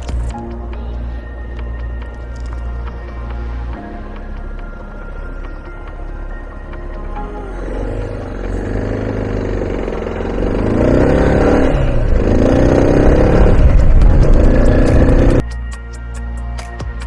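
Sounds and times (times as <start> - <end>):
motorcycle engine accelerating: 7.4 - 15.4.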